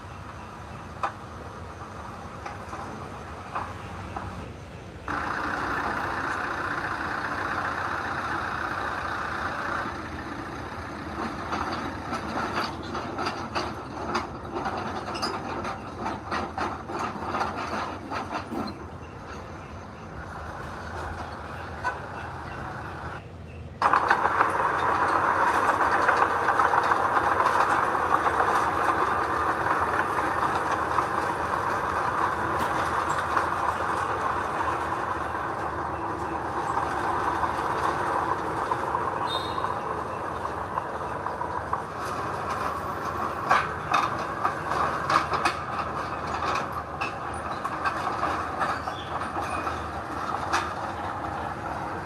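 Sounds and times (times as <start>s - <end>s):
heavy machinery running: 0.0s - 52.0s
metallic clanks and knocks: 9.8s - 23.2s, 23.8s - 51.9s.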